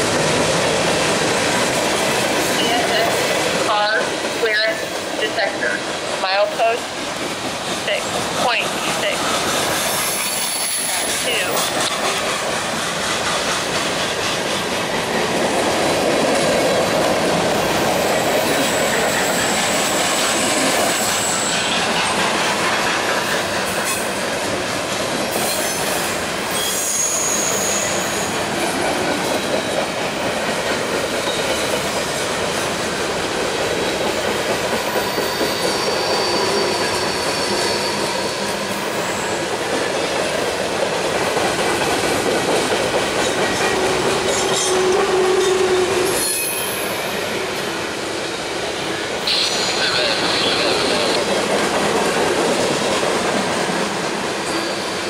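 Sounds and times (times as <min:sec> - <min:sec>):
freight train wheels rumbling: 0:00.0 - 0:55.0
high-pitched wheel squeals: 0:26.5 - 0:28.3, 0:34.9 - 0:38.4, 0:45.3 - 0:47.2.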